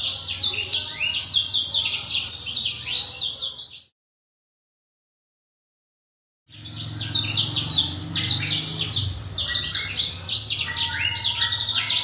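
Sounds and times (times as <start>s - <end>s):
canary singing warbling song: 0.0s - 4.0s, 6.5s - 12.0s.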